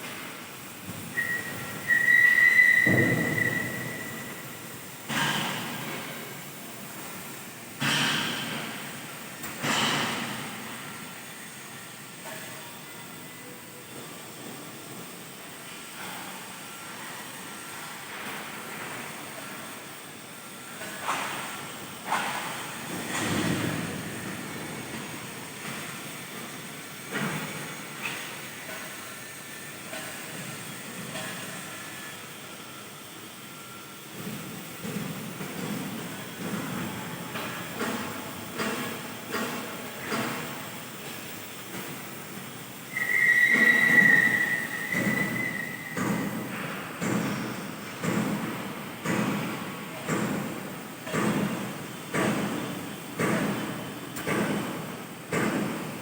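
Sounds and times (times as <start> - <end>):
plate-cutting machine hissing: 0.0 - 48.0
metallic squeal of cutting machine: 1.1 - 4.5, 42.9 - 46.0.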